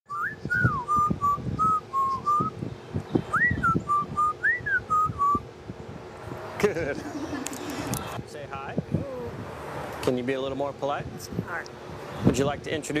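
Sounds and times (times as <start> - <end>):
parrot whistling: 3.3 - 5.4.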